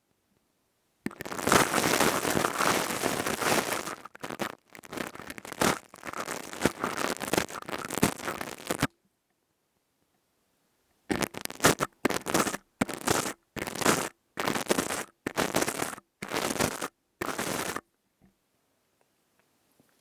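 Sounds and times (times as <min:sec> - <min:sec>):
crackling and scratching at microphone: 0:01.0 - 0:08.9, 0:11.1 - 0:17.9.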